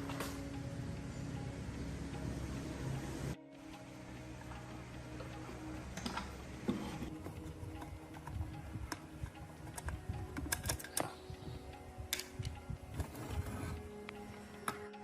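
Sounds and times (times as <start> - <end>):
faint background music: 0.0 - 15.0
small parts and tools clicking: 4.4 - 15.0.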